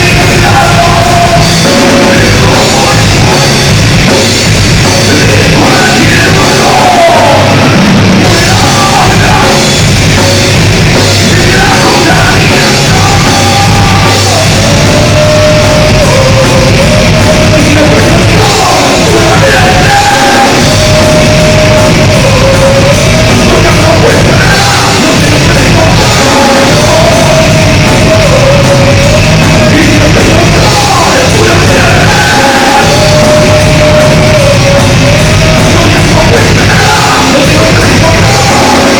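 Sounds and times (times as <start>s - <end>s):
distorted guitars: 0.0s - 38.9s
drums: 0.0s - 38.9s
person yelling vocals: 5.2s - 7.6s.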